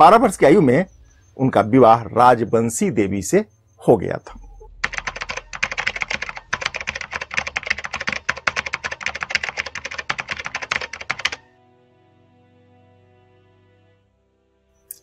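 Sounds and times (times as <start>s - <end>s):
fast keyboard typing clicks: 4.8s - 11.4s
soft music with held notes: 11.4s - 15.0s.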